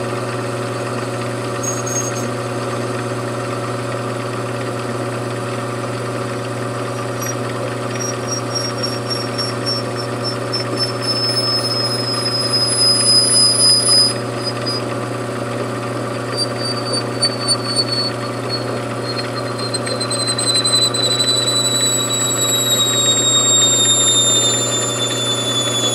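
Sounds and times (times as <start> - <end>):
high whine from cutting: 6.8 - 25.9
machine tool humming: 6.8 - 25.9.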